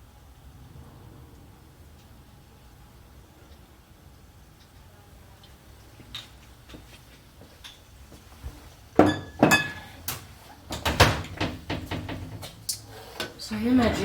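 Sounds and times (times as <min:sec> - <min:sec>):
pots and utensils clinking: 0:09.0 - 0:11.9.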